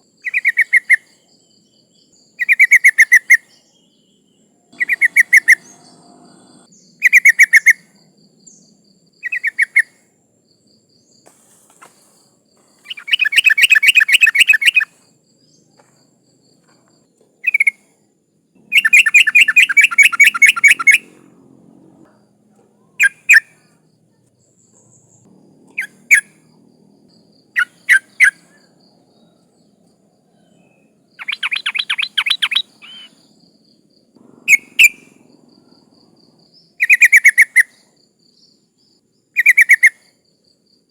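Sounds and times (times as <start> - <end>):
bird rapid chattering calls: 4.8 - 7.8, 11.4 - 15.0, 18.6 - 21.3, 24.6 - 26.6, 27.6 - 28.7, 31.2 - 33.2, 34.2 - 35.9.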